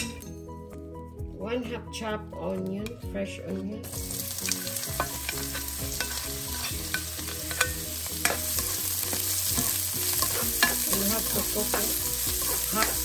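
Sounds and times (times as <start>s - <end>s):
onion sizzling in hot oil: 3.8s - 13.0s.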